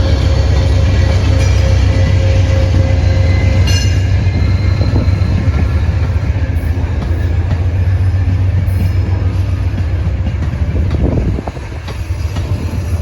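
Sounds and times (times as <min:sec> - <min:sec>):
high-pitched squeal: 0:00.0 - 0:06.2
passenger train rumbling: 0:00.0 - 0:13.0.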